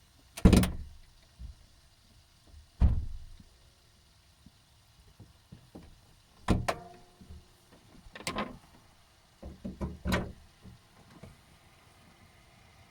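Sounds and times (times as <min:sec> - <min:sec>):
car driveline knocks and rattles: 0:00.4 - 0:01.6, 0:02.5 - 0:03.5, 0:05.2 - 0:08.6, 0:09.4 - 0:11.3.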